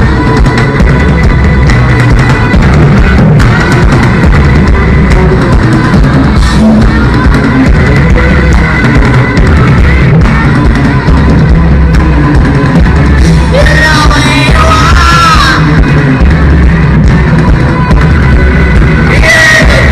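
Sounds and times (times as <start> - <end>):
heavy rock band playing: 0.0 - 19.9
person singing or shouting: 13.2 - 19.9.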